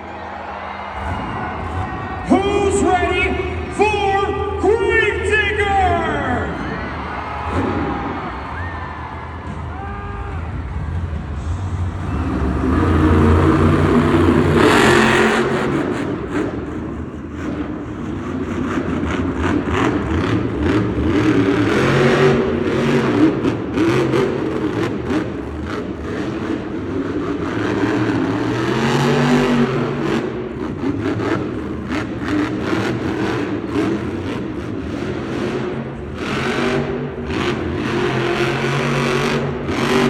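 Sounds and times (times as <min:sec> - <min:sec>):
monster truck engine revving: 0:00.0 - 0:40.0
loud burst of noise: 0:07.0 - 0:23.8.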